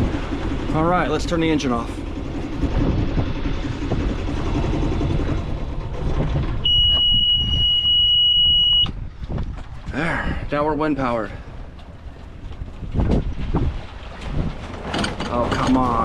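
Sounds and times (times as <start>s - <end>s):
boat engine running: 0.0s - 16.0s
wind and water: 0.0s - 16.0s.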